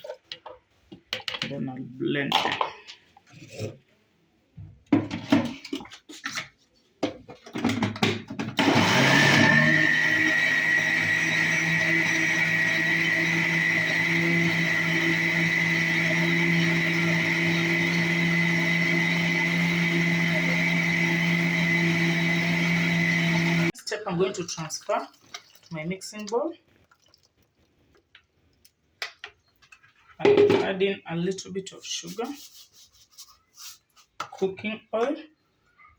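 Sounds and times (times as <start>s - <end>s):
electric blender whining: 8.6s - 23.7s.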